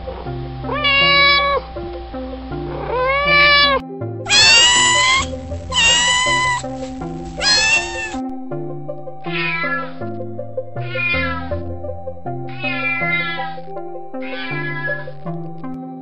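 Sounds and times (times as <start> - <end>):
background music: 0.0 - 16.0
cats meowing: 0.7 - 1.6, 2.9 - 8.2, 14.2 - 14.8.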